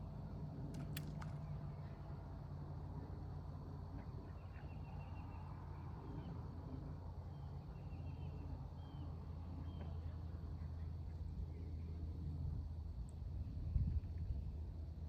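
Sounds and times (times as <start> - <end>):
steady low rumble: 0.0 - 15.0
faint bird chirps: 4.0 - 6.6, 7.3 - 12.0.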